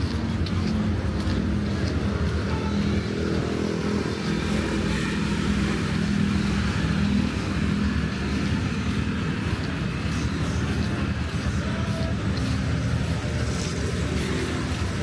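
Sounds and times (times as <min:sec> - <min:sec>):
street noise: 0:00.0 - 0:15.0
vehicle engine humming: 0:00.0 - 0:15.0.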